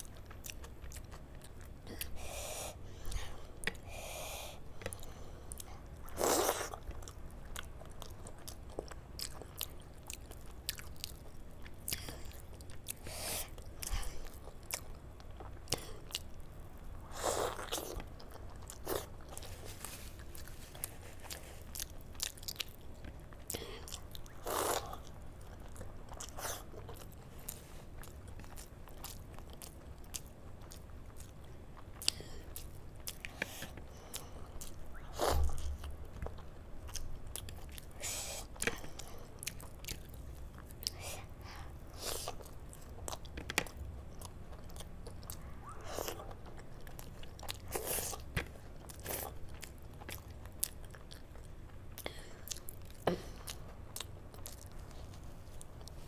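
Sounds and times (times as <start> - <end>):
wet chewing: 38.6 - 41.0.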